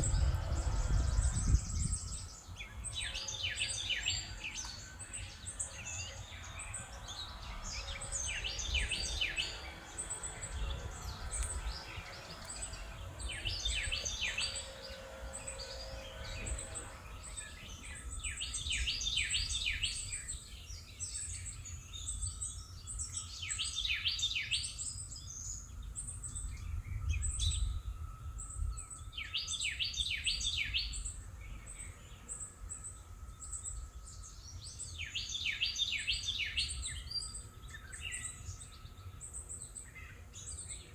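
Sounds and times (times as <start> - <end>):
low outdoor rumble: 0.0 - 21.0
songbird singing rapid high notes: 0.0 - 25.7.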